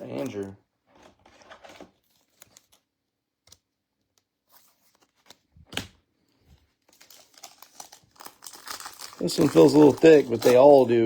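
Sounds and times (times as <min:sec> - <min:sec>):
packaging crinkling: 0:06.9 - 0:11.0.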